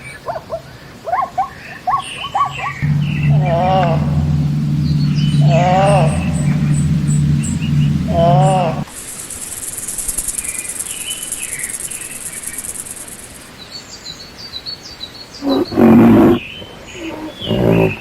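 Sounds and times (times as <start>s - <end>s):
birds chirping: 2.8s - 8.9s
lion-like roar: 2.8s - 8.9s
wavering animal call: 2.8s - 8.9s
high insect buzz: 2.8s - 13.5s.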